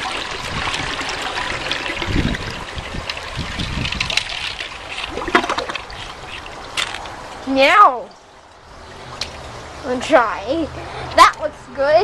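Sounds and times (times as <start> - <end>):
water trickling into toilet bowl: 0.0 - 7.4.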